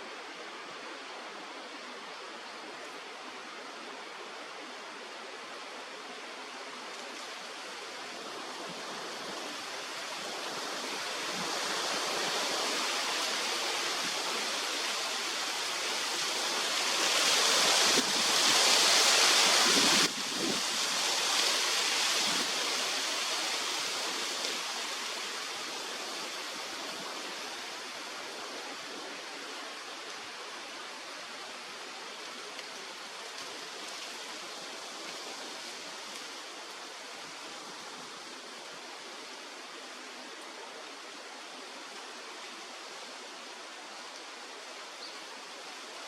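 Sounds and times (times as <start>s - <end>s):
wind gust rushing: 16.3s - 22.8s.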